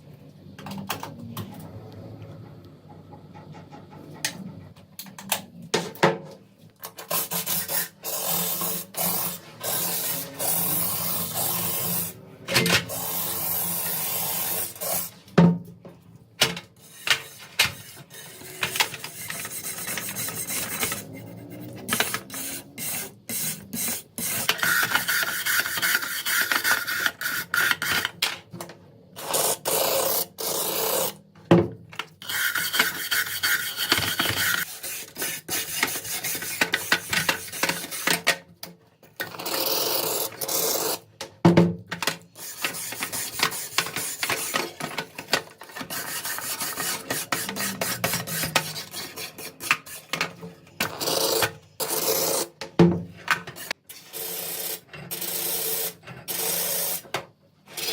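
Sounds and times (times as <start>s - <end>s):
abrasive scraping of rusty steel: 45.7s - 50.2s.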